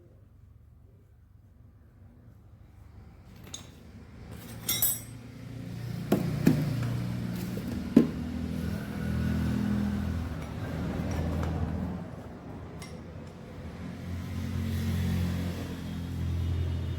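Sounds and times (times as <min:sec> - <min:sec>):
metallic clinks and knocks: 0:03.4 - 0:05.3.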